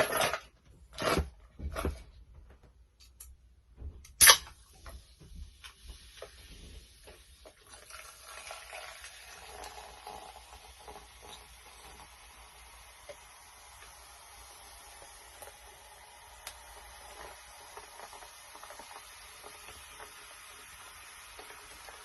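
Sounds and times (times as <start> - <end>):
chicken sizzling in hot oil: 8.6 - 22.0.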